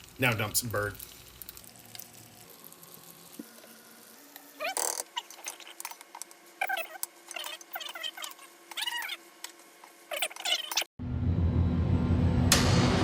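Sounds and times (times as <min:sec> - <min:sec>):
high-pitched squeaky calls: 0:06.6 - 0:09.2, 0:10.1 - 0:10.9.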